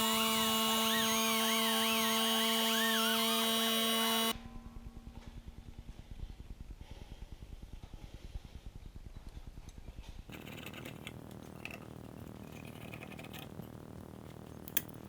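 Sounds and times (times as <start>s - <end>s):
air die grinder whining: 0.0s - 4.4s, 10.3s - 15.0s.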